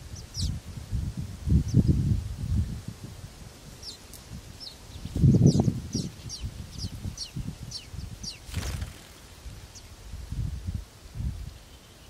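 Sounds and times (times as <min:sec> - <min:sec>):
small bird chirping: 0:00.0 - 0:00.6, 0:01.5 - 0:02.0, 0:03.8 - 0:09.0, 0:09.6 - 0:10.0.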